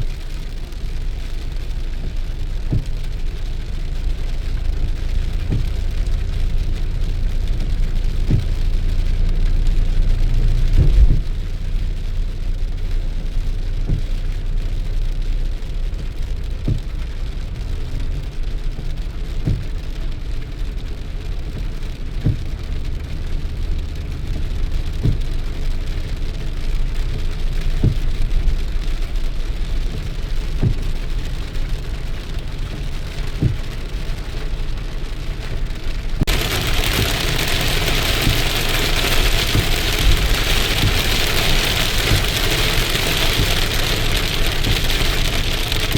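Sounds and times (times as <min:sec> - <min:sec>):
steady rain: 0:00.0 - 0:45.9
short soft knock: 0:10.8 - 0:11.3.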